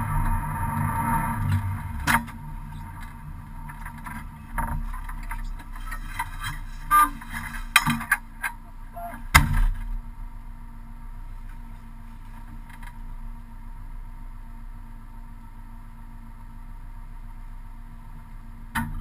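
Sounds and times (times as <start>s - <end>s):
car engine idling: 0.0s - 19.0s
clunks and knocks: 0.2s - 10.0s, 18.7s - 19.0s
loud sharp thump: 9.3s - 10.0s.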